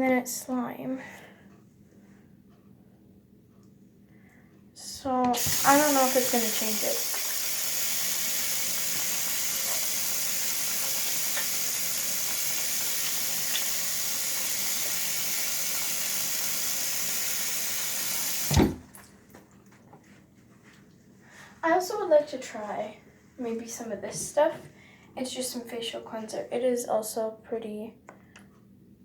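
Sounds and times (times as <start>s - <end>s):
steady hiss: 5.4s - 18.7s.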